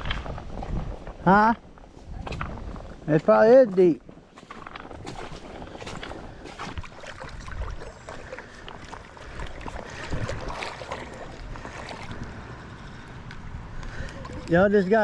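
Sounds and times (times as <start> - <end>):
crackling and rustling: 0.0 - 7.2
water sloshing around wading legs: 1.7 - 15.0.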